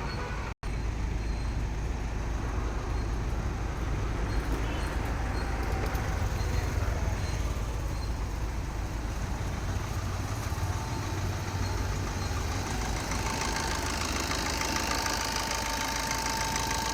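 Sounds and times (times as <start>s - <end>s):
car engine idling: 0.8s - 16.9s
thin steady whine: 11.0s - 16.9s.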